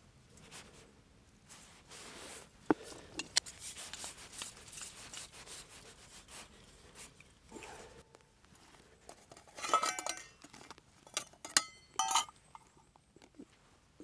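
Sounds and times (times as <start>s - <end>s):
cookware and bags rustling: 7.3s - 12.9s.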